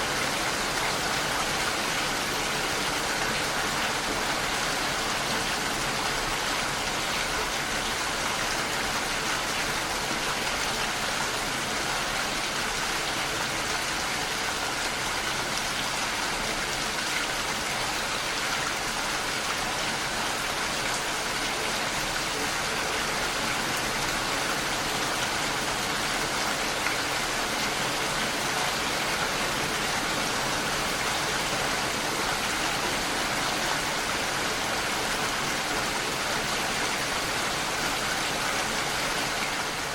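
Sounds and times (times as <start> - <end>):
heavy rain on a window: 0.0 - 39.9.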